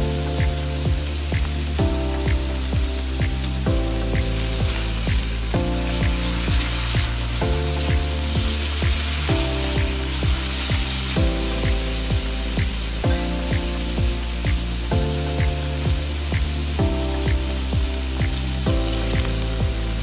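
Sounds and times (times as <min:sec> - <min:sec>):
background music with drum beat: 0:00.0 - 0:20.0
meat sizzling in hot oil: 0:00.0 - 0:20.0.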